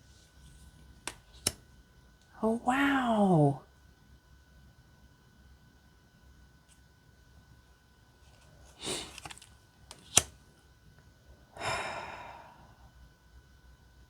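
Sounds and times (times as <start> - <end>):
cards rustling: 8.3 - 10.3
card sliding off deck: 8.8 - 10.3.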